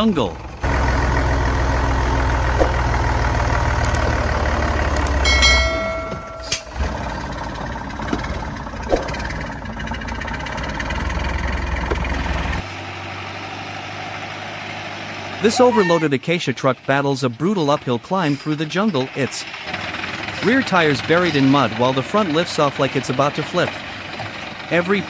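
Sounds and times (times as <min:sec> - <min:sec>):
truck engine running under load: 0:00.0 - 0:25.0
high-pitched squeal: 0:15.4 - 0:16.2.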